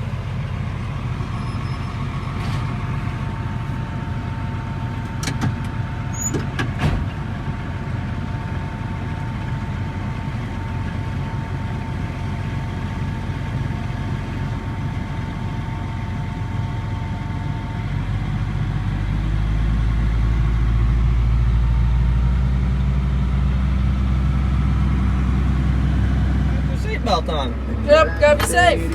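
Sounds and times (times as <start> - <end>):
tractor engine running: 0.0 - 28.9.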